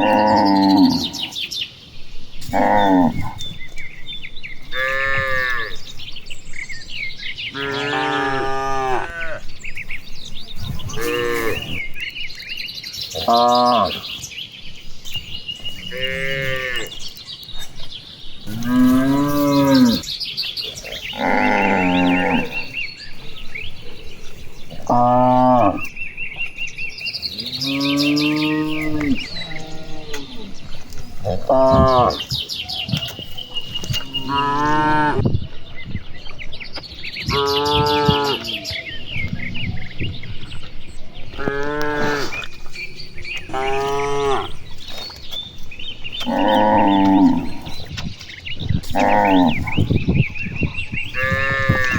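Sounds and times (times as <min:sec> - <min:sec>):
cattle mooing: 0:00.0 - 0:01.3, 0:04.7 - 0:05.8, 0:07.5 - 0:09.5, 0:10.8 - 0:11.8, 0:15.8 - 0:17.0, 0:18.5 - 0:20.0, 0:20.8 - 0:22.7, 0:24.7 - 0:25.9, 0:27.4 - 0:30.6, 0:31.2 - 0:32.3, 0:41.3 - 0:42.5, 0:43.4 - 0:44.7, 0:46.2 - 0:47.8, 0:51.2 - 0:51.9.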